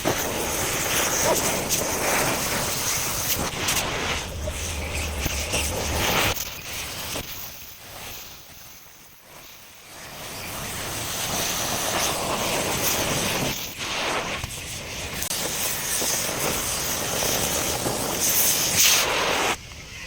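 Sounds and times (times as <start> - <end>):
welding arc crackling and hissing: 0.0 - 19.9.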